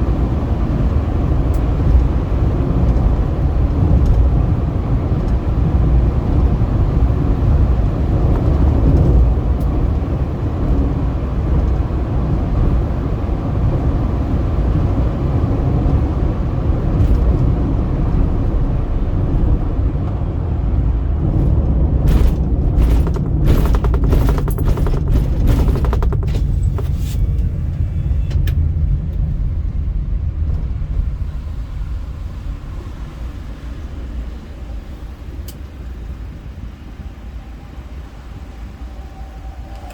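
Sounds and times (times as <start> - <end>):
car road and engine rumble: 0.0 - 39.9
sharp clicks: 22.1 - 27.2.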